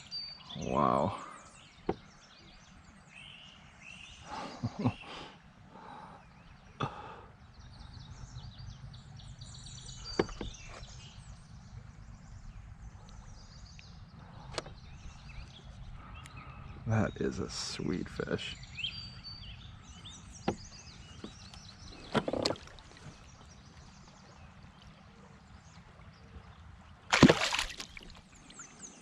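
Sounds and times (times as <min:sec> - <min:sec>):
wild birds chirping and singing: 0:00.0 - 0:29.0
low background rumble: 0:07.4 - 0:16.9.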